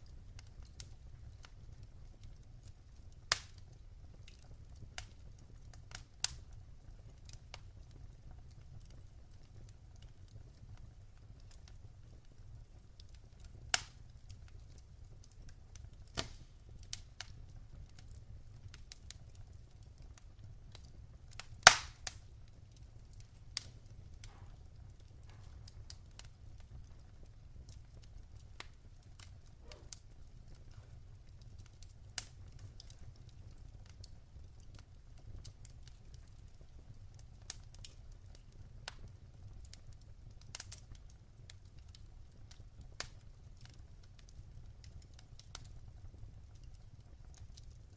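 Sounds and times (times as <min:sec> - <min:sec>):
wood fire crackling and popping: 0:00.0 - 0:47.9.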